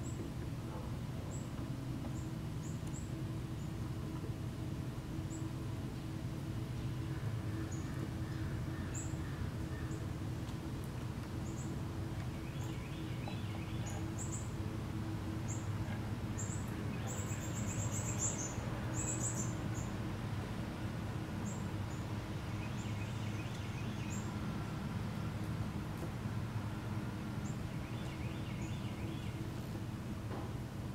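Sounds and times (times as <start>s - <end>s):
low outdoor background hum: 0.0s - 30.9s
small birds chirping: 11.2s - 20.1s, 21.4s - 24.4s, 27.4s - 29.6s.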